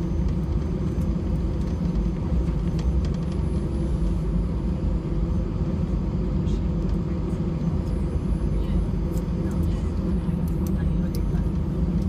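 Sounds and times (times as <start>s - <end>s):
airplane cabin rumble: 0.0s - 12.0s.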